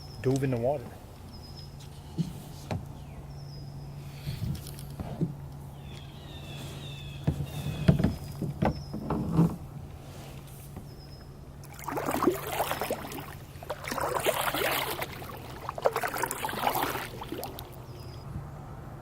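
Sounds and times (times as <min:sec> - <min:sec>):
steady low hum: 0:00.0 - 0:19.0
kayak paddle splashing: 0:07.1 - 0:18.1.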